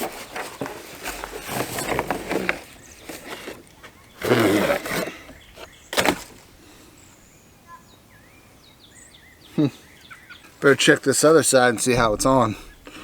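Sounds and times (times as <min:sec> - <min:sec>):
faint birds chirping: 0:00.0 - 0:13.0
sharp knock: 0:12.0 - 0:12.8.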